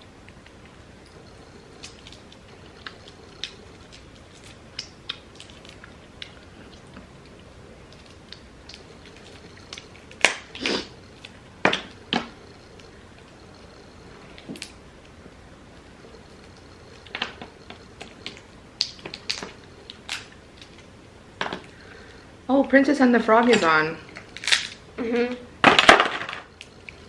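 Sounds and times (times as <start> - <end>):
shells clicking and cracking: 24.2 - 24.8.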